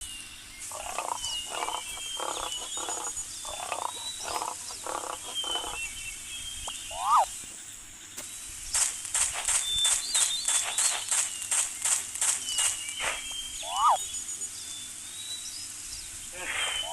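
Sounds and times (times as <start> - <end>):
rasping pulsed animal calls: 0.6 - 5.9, 6.6 - 7.3, 13.2 - 14.0, 16.3 - 16.9
bird chirps and whistles: 6.4 - 7.4, 9.6 - 11.7, 12.4 - 14.2, 16.4 - 16.9
animal call rising and falling: 6.8 - 7.3, 13.6 - 14.0.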